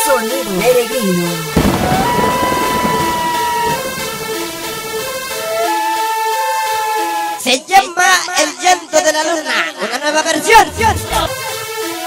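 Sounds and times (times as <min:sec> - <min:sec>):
rushing noise: 0:01.6 - 0:05.6.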